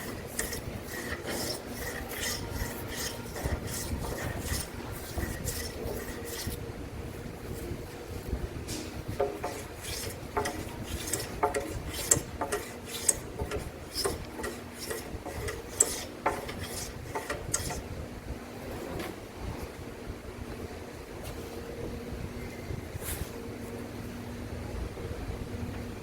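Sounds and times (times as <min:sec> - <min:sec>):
hand tool scraping wood: 0:00.0 - 0:06.6, 0:08.7 - 0:17.9.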